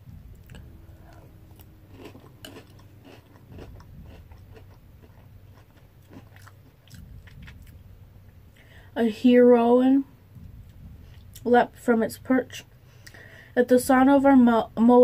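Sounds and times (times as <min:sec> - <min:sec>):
person chewing crunchy cereal: 0:00.2 - 0:07.9.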